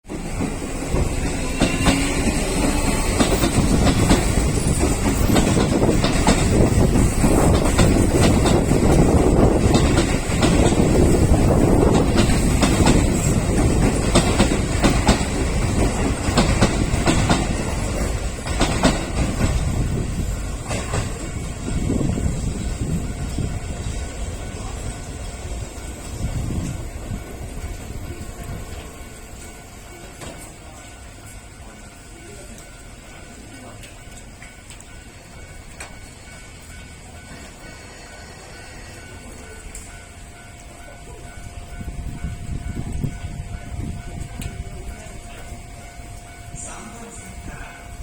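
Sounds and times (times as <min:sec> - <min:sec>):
train rumble: 0:00.0 - 0:48.0
train wheels clacking over rail joints: 0:00.1 - 0:31.0.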